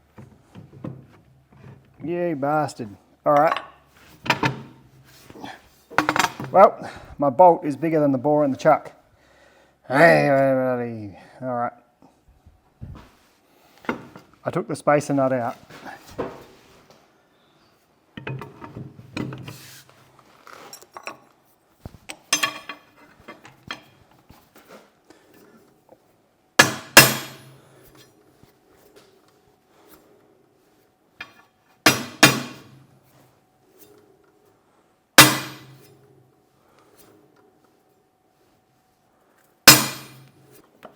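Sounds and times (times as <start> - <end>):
metal parts clinking: 22.1 - 24.0.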